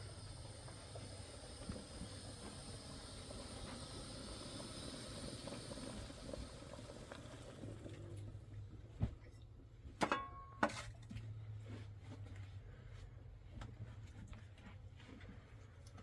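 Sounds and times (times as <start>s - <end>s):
steady hissing noise: 0.0s - 7.5s.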